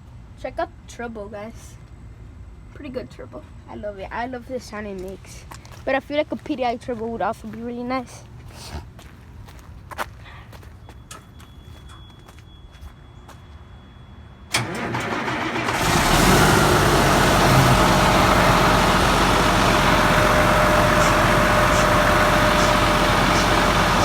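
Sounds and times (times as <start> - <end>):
diesel engine idling: 14.5 - 24.0.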